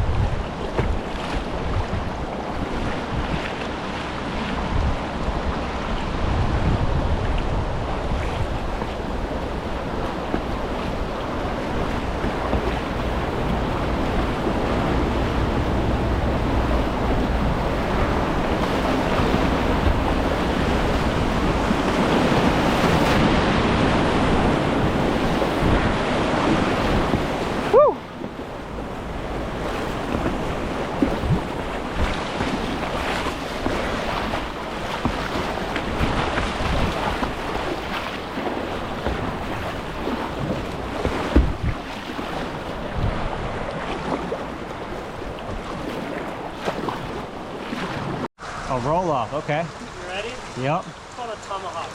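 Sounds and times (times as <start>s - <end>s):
wind on microphone: 0.0s - 48.8s
river whitewater rushing: 1.2s - 41.4s.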